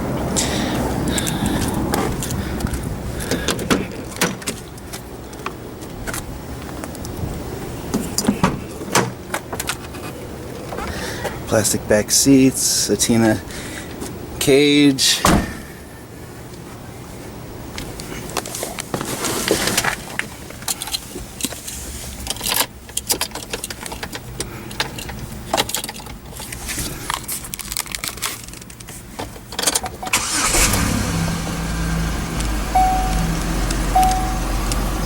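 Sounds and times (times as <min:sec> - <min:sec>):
clicks and rattling inside car: 0:02.0 - 0:05.0, 0:08.0 - 0:11.0, 0:27.8 - 0:30.2
car engine starting and idling: 0:30.0 - 0:35.0
dashboard chime beep: 0:32.8 - 0:34.7.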